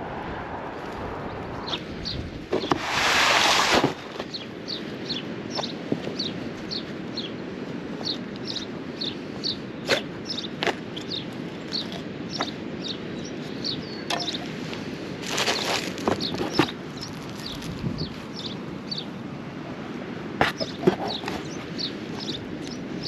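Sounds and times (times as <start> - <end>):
loud rushing burst of noise: 0.0 - 4.1
small bird chirping: 4.2 - 7.4, 8.0 - 14.5, 15.5 - 19.2, 20.5 - 23.0.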